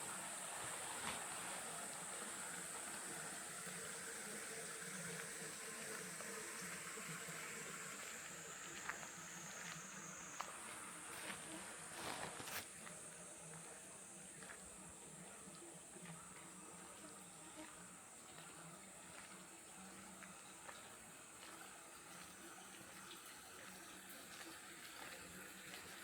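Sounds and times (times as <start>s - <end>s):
frogs chorus: 0.0s - 11.8s
high-pitched insect trill: 6.7s - 12.3s.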